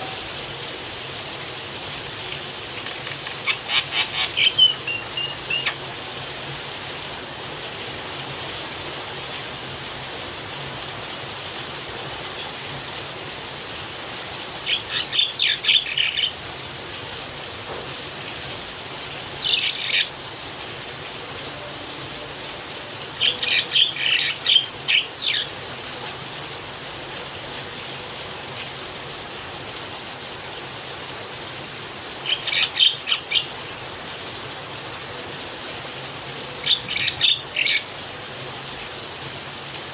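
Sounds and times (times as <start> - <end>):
rain falling: 0.0 - 39.9
bird chattering calls: 2.7 - 6.0, 14.6 - 16.4, 19.3 - 20.1, 23.1 - 25.6, 32.2 - 33.7, 36.6 - 37.9.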